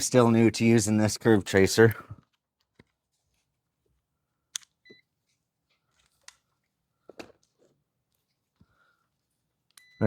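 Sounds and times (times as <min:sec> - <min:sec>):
multimeter beep: 0:04.8 - 0:05.1, 0:09.7 - 0:10.0.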